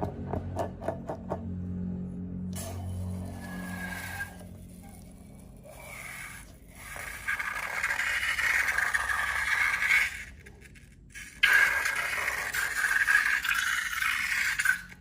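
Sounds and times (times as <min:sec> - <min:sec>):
slime scraping: 0:03.2 - 0:15.0.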